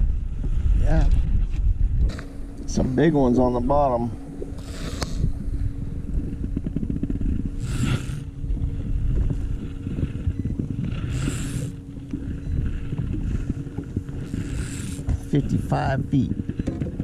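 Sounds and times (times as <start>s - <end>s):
low motor hum: 0.0s - 17.0s
wind buffeting microphone: 0.0s - 17.0s
hissing swells: 4.2s - 5.8s.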